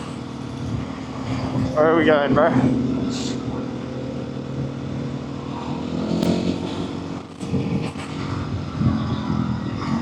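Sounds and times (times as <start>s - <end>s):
motorcycle engine revving: 0.0s - 10.0s
wind noise: 6.2s - 10.0s.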